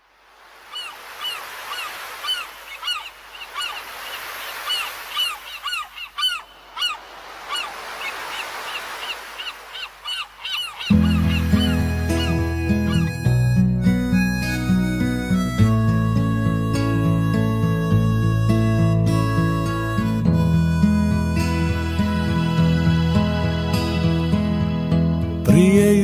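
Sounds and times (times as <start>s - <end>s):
seagulls calling: 0.5s - 25.4s
music with harmonica: 10.9s - 25.4s.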